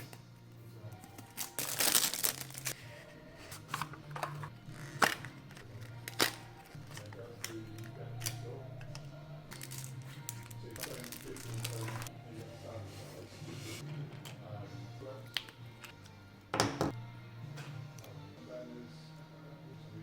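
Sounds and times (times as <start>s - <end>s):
background music: 0.0s - 20.0s
packaging rustling: 1.1s - 2.8s, 9.5s - 12.1s.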